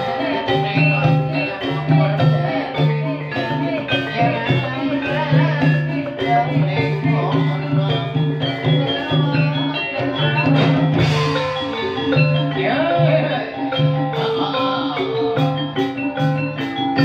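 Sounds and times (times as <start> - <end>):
drums: 0.0 - 17.0
tuned mallet percussion: 0.0 - 17.0.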